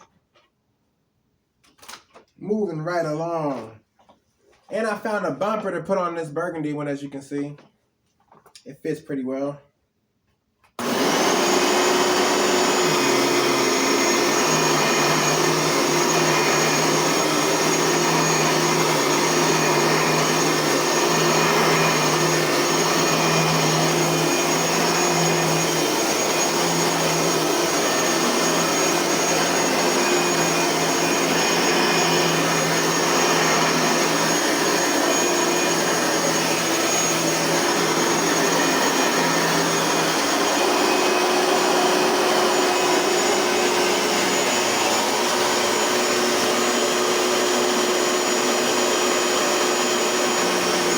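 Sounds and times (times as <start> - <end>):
vacuum cleaner motor whine: 10.8 - 50.9.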